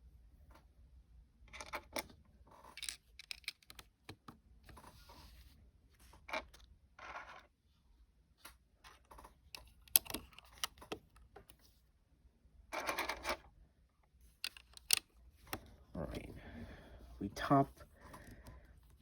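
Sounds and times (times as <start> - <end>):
plastic bricks clicking together: 2.7 - 3.9, 9.6 - 11.0, 14.4 - 15.6.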